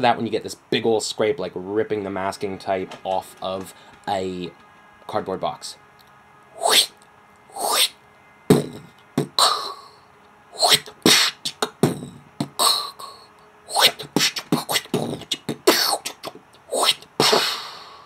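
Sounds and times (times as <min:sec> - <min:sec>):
inhaled beatbox scrapes: 0:06.6 - 0:06.9, 0:07.5 - 0:09.8, 0:10.6 - 0:17.9
beatbox pattern of clicks: 0:08.5 - 0:09.6, 0:10.6 - 0:13.0, 0:13.7 - 0:17.6.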